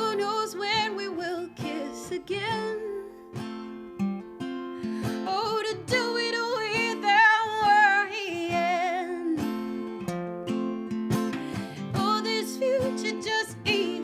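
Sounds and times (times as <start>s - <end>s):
person singing with vibrato: 0.0s - 3.2s, 11.4s - 14.0s
acoustic guitar strumming: 0.0s - 14.0s.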